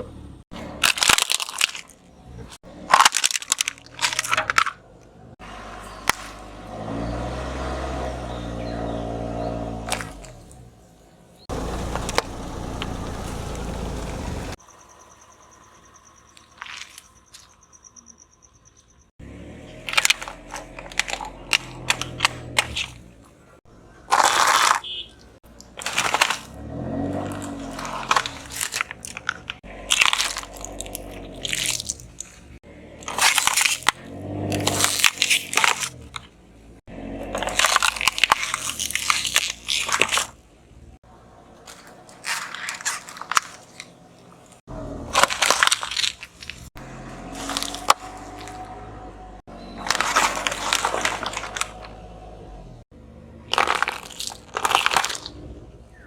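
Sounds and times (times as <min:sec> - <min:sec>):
objects crushed under car tyre: 0:00.5 - 0:05.0, 0:05.9 - 0:10.7, 0:11.4 - 0:14.6, 0:16.1 - 0:17.7, 0:19.2 - 0:36.4, 0:37.0 - 0:40.4, 0:41.6 - 0:56.0.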